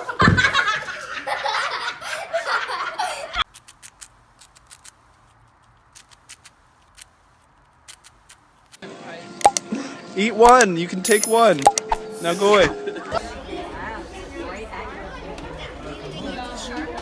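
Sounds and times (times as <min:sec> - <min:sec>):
people laughing loudly: 0:00.0 - 0:03.4, 0:12.4 - 0:13.4.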